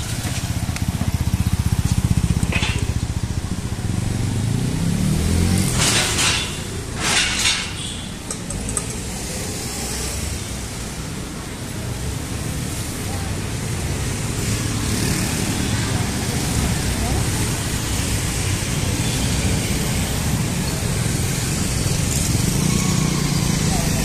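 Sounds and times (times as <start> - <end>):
vehicle engine running: 0.0 - 7.0.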